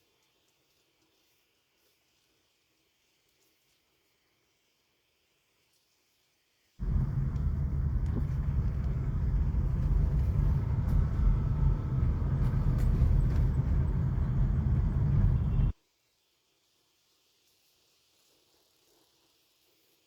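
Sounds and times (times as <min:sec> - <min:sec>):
storm wind buffeting microphone: 0:06.8 - 0:15.7.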